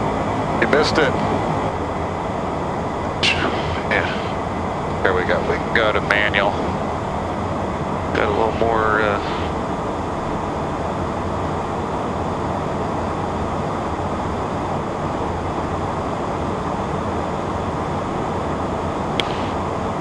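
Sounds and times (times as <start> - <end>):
cockpit airflow: 0.0 - 20.0
jet engines rumbling: 0.0 - 20.0
brief click: 19.2 - 19.5.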